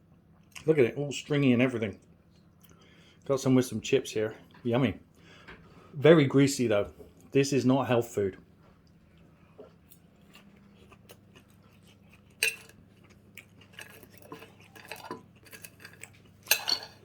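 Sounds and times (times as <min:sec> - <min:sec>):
cutlery clinking on a plate: 0:12.4 - 0:12.8, 0:13.7 - 0:17.0.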